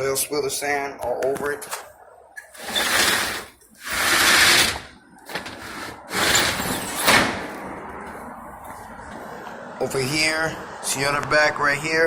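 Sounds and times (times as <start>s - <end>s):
roll-up door rattling: 2.5s - 7.4s.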